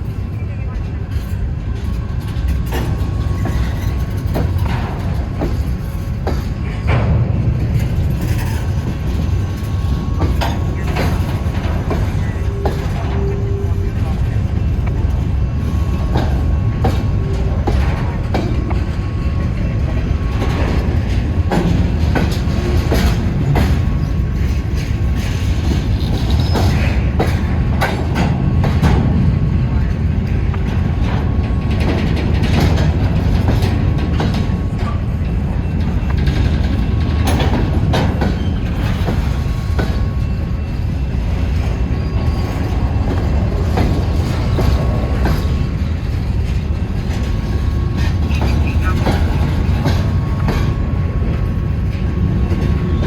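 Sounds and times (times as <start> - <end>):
train wheels rumbling on rail: 0.0 - 53.0
wheels clacking over rail joints: 1.1 - 53.0.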